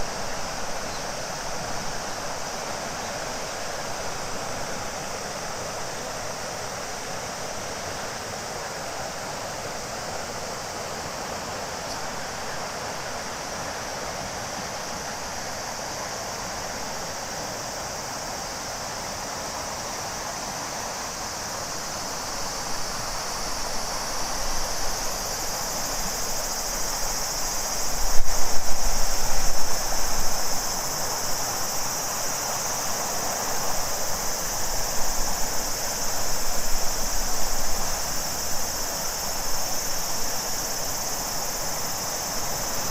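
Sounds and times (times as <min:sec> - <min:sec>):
cicadas buzzing: 0:00.0 - 0:42.9
river rushing: 0:00.0 - 0:42.9.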